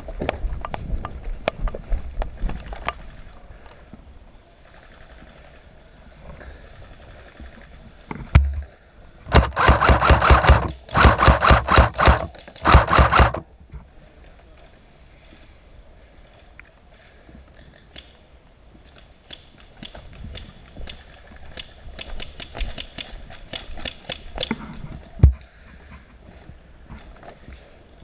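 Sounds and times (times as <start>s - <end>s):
airsoft gun firing full-auto: 9.3s - 13.4s.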